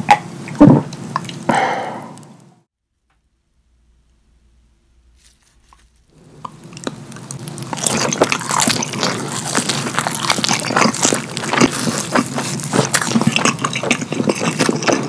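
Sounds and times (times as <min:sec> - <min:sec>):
close biting and chewing: 0:05.5 - 0:15.0.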